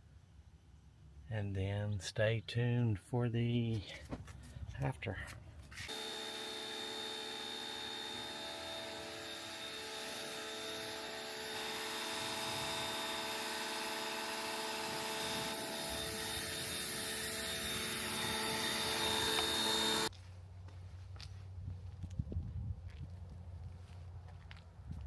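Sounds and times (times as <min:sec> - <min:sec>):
machine motor drone with whine: 0:05.9 - 0:20.1.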